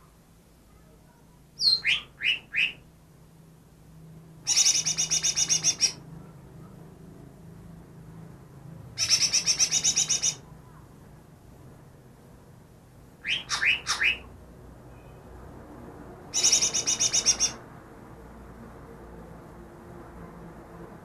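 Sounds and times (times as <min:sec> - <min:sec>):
bird trilling: 0:01.6 - 0:02.8, 0:04.5 - 0:06.0, 0:09.0 - 0:10.5, 0:13.2 - 0:14.3, 0:16.3 - 0:17.6.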